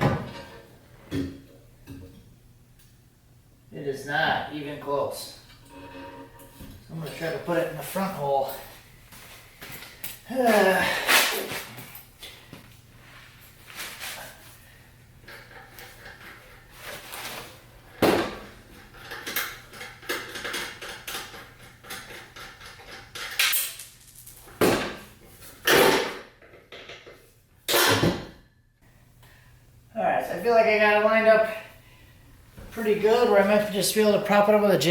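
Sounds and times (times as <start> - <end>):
faint steady hum: 28.7 - 34.9.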